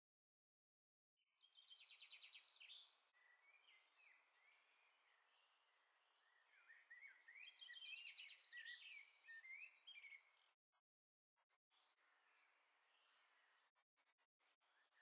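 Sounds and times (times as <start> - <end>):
songbird chirping and trilling: 1.3 - 10.6.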